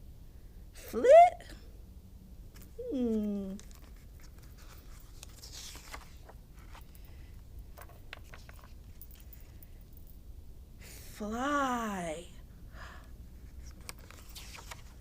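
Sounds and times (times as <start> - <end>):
page turning: 3.6 - 7.0, 7.8 - 8.8, 13.4 - 15.0
paper rustling: 3.6 - 9.4, 13.4 - 15.0.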